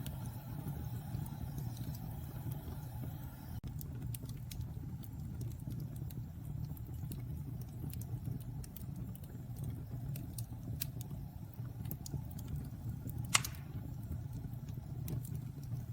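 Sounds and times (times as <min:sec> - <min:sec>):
wood fire crackling: 0:00.0 - 0:15.9
sharp pop of fire: 0:13.2 - 0:14.0.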